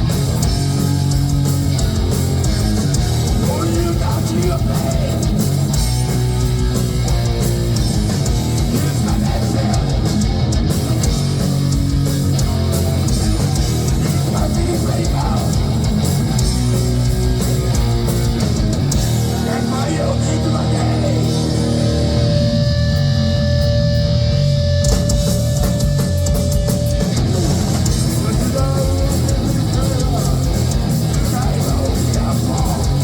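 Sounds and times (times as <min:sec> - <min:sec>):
electric guitars: 0:00.0 - 0:33.0
heavy metal band playing live: 0:00.0 - 0:33.0.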